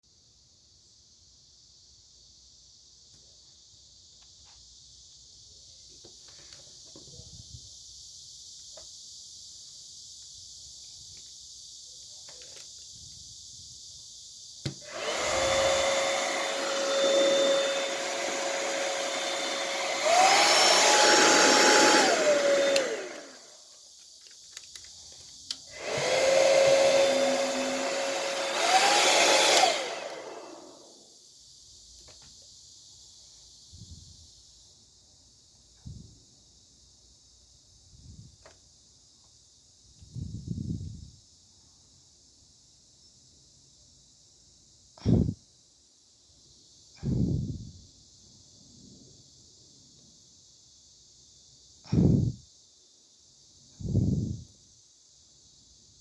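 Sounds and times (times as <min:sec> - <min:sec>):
hair dryer running: 0:14.7 - 0:23.5, 0:25.7 - 0:31.0
hair dryer switch click: 0:22.6 - 0:23.2.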